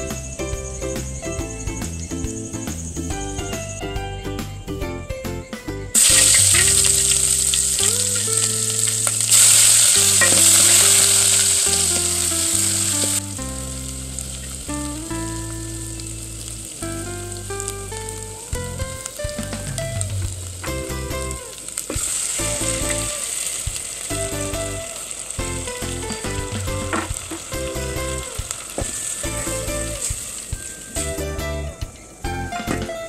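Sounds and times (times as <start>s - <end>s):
soft background music: 0.0s - 33.0s
onions sizzling in hot oil: 6.0s - 19.8s, 20.4s - 31.1s.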